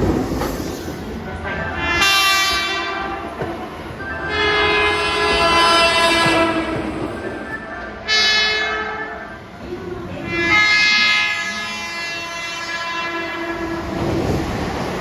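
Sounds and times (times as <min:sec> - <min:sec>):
train rumble: 0:00.0 - 0:15.0
train horn blasts: 0:01.5 - 0:03.2, 0:04.2 - 0:07.2, 0:08.0 - 0:09.2, 0:10.2 - 0:13.8.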